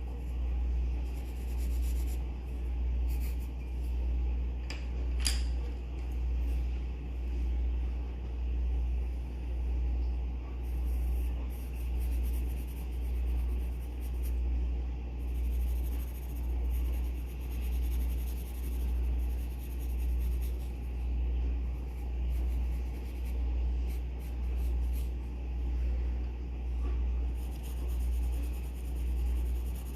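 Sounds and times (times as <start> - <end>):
loud low pulsing hum: 0.0 - 29.9
pencil scratching on paper: 0.9 - 4.0, 10.7 - 14.4, 15.2 - 21.0, 21.8 - 25.2, 27.3 - 29.9.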